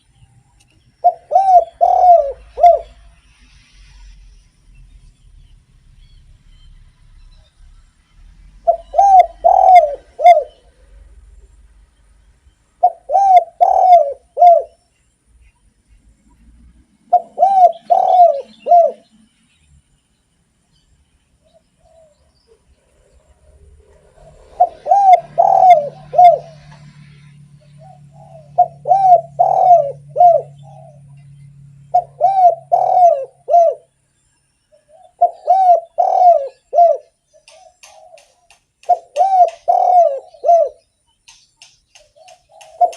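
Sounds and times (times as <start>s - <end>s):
dove cooing: 1.0s - 3.1s, 8.6s - 11.0s, 12.8s - 14.8s, 17.1s - 19.1s, 21.5s - 33.9s, 34.7s - 40.8s, 41.9s - 42.9s.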